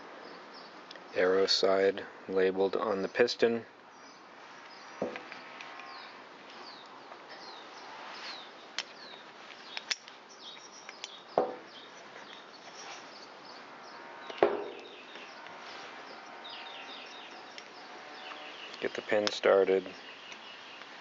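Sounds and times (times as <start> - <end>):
birds chirping: 0.2 - 21.0
small parts clicking and knocking: 8.8 - 11.6.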